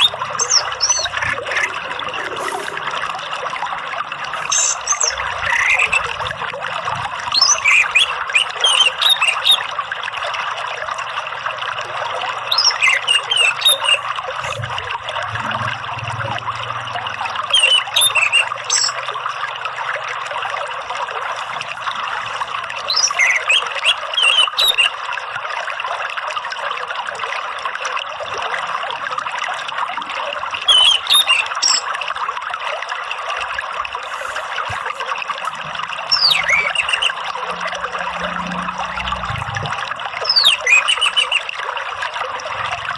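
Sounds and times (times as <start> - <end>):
thrush chirping and whistling: 0.0 - 1.7, 4.4 - 6.2, 7.3 - 9.7, 12.5 - 14.6, 17.5 - 19.0, 22.9 - 24.9, 30.7 - 31.9, 36.1 - 37.3, 40.2 - 41.5
trickling water: 0.0 - 42.9.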